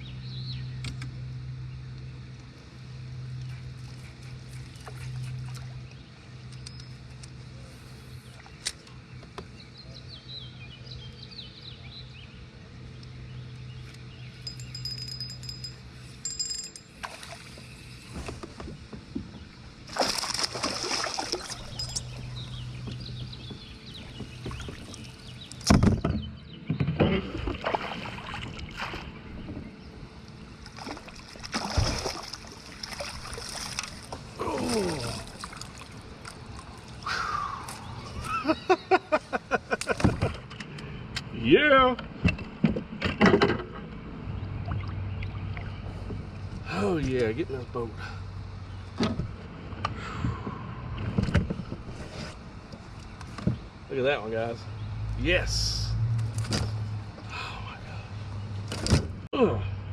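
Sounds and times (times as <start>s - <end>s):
steady low hum: 0.0s - 59.9s
water sloshing and splashing: 17.0s - 18.6s, 19.5s - 25.7s, 27.0s - 29.8s, 30.4s - 37.1s, 44.4s - 46.5s.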